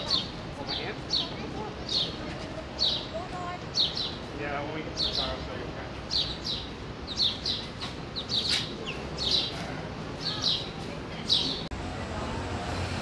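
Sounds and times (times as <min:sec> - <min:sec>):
small bird chirping: 0:02.8 - 0:04.2, 0:05.0 - 0:11.7.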